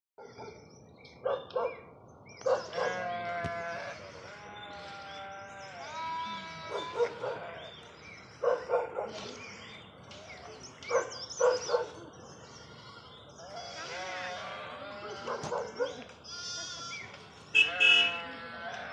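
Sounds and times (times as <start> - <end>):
goats bleating: 2.8 - 7.7, 12.4 - 15.4, 16.2 - 18.9.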